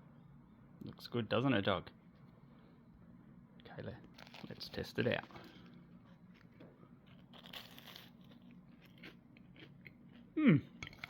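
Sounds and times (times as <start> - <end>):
person crunching and chewing: 4.1 - 11.0.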